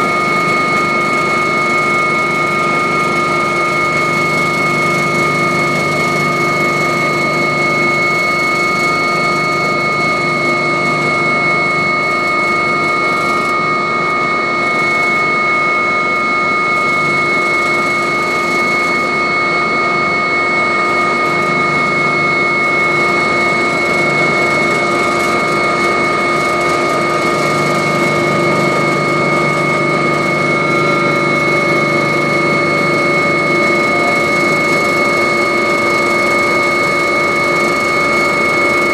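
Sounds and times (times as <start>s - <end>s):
helicopter rotor rushing: 0.0s - 38.9s
helicopter turbine whine: 0.0s - 38.9s.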